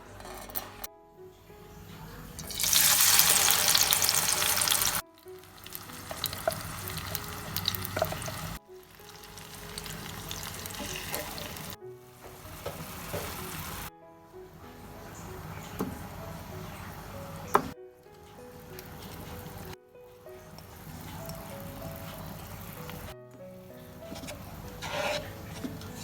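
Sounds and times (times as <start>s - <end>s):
soft background music: 0.0s - 26.0s
food sizzling in oil: 2.4s - 13.9s, 20.4s - 23.1s, 23.8s - 26.0s
stirring clicks: 2.4s - 13.9s, 15.2s - 19.8s, 20.4s - 23.1s, 23.8s - 26.0s.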